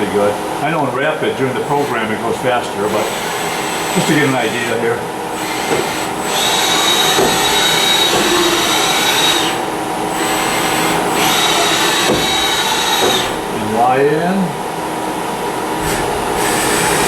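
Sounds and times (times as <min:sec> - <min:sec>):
machine running hum: 0:00.0 - 0:17.0
servo motor whine: 0:02.8 - 0:13.5.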